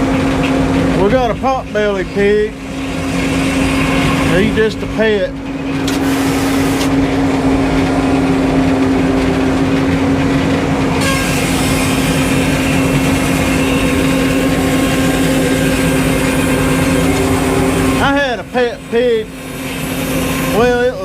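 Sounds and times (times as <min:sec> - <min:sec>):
engine droning steadily: 0:00.0 - 0:21.0
hiss: 0:06.0 - 0:06.9.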